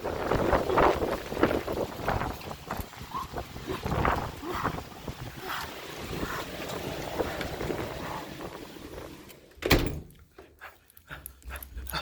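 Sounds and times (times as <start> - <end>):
storm wind rushing: 0.0 - 9.3.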